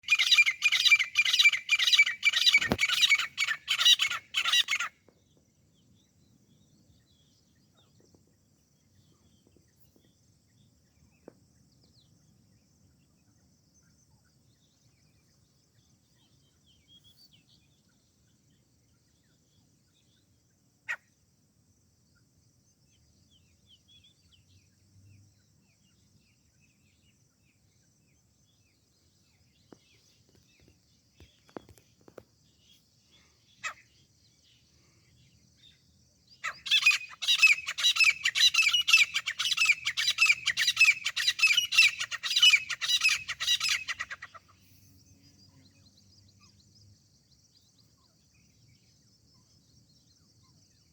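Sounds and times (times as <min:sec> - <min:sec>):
francolin calling: 0:00.0 - 0:05.0, 0:31.2 - 0:46.6.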